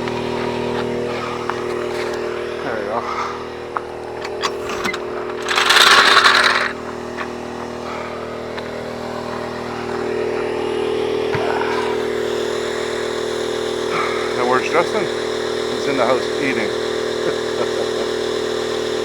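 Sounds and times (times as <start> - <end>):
motor running: 0.0 - 19.0
loud hiss: 11.5 - 19.0.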